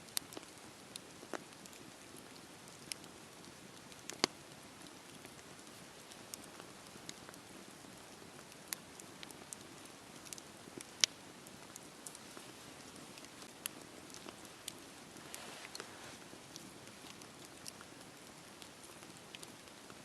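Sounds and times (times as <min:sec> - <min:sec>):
wood popping and crackling: 0:00.1 - 0:20.0
hiss of flames: 0:15.1 - 0:16.3.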